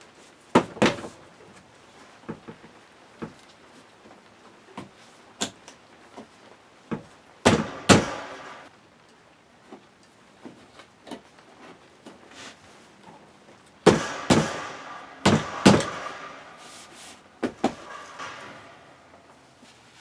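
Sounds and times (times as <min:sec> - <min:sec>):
metal knocks and clanks: 0:07.0 - 0:08.7, 0:13.8 - 0:19.6.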